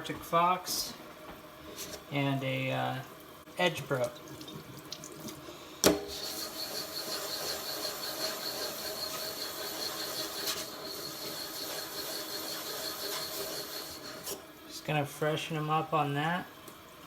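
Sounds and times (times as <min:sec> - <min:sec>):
stone scraping on a plate: 0:06.1 - 0:14.4.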